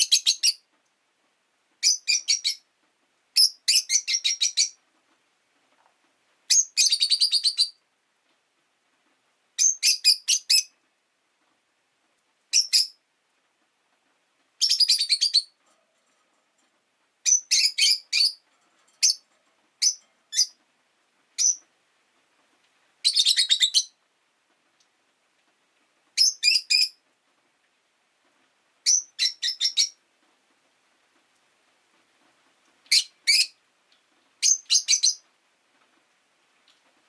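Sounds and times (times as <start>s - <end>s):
lovebirds chirping: 0.0s - 0.7s, 1.8s - 2.7s, 3.4s - 4.8s, 6.5s - 7.8s, 9.6s - 10.8s, 12.5s - 13.0s, 14.6s - 15.6s, 17.2s - 18.4s, 19.0s - 20.6s, 21.4s - 21.7s, 23.0s - 24.0s, 26.2s - 27.0s, 28.8s - 30.0s, 32.9s - 33.6s, 34.4s - 35.2s.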